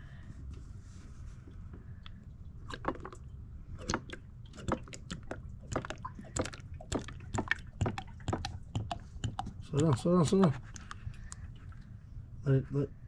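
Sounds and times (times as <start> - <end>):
oil glugging out of a bottle: 2.6 - 10.0.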